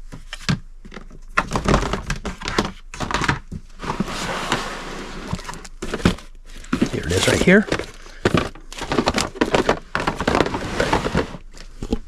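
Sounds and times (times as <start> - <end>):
items knocking on shelf: 5.8 - 11.4.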